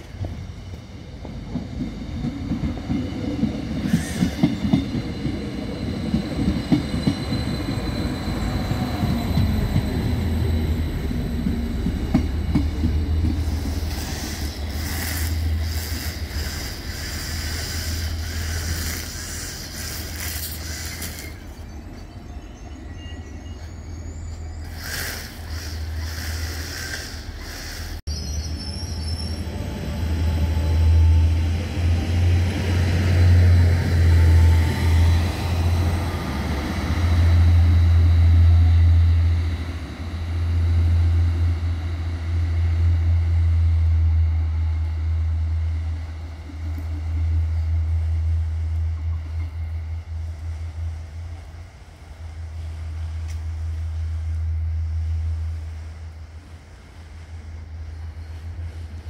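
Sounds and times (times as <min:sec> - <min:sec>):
wheels rumbling over rails: 0:00.0 - 0:28.0
brake squeals and hissing: 0:03.8 - 0:04.7, 0:13.3 - 0:21.8, 0:23.2 - 0:29.7.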